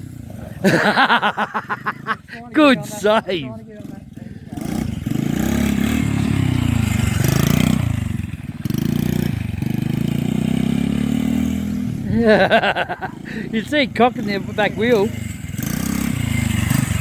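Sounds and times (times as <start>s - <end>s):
small engine revving: 3.8s - 17.0s.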